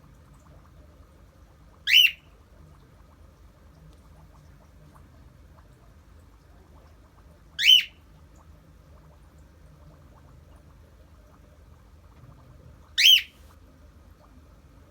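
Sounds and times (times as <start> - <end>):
cockatiel shrill whistle call: 7.6 - 7.9, 13.0 - 13.3.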